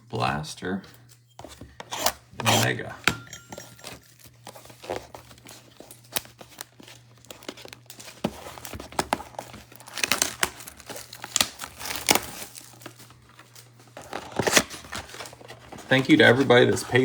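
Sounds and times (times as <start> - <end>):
packaging crinkling and tearing: 3.8 - 17.0.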